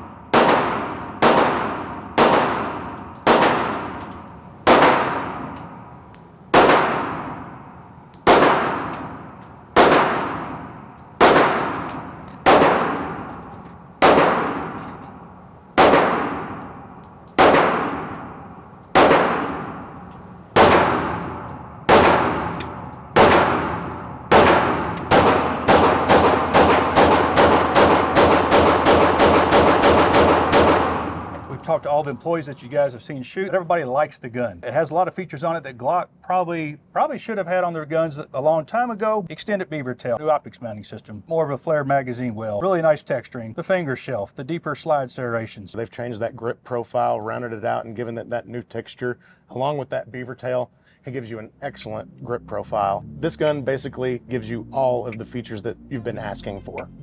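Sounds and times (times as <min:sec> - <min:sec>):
pistol shots with echo: 0:00.1 - 0:31.7.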